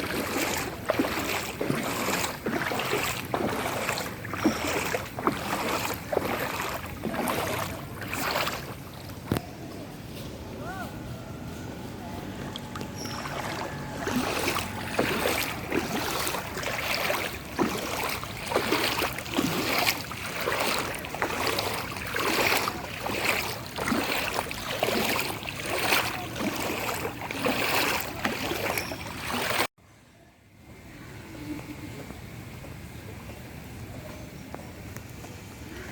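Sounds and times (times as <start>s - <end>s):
floodwater sloshing and splashing: 0.0s - 9.5s, 12.2s - 29.7s.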